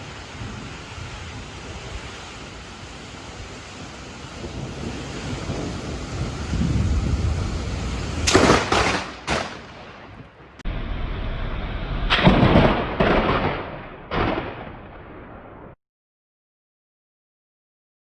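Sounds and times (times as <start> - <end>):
thunder rumbling and cracking: 0.0 - 15.8.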